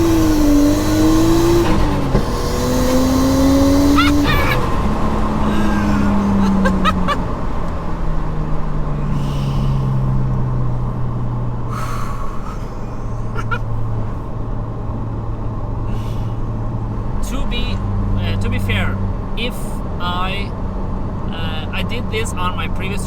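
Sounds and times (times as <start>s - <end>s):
car engine revs falling: 0.0s - 15.0s.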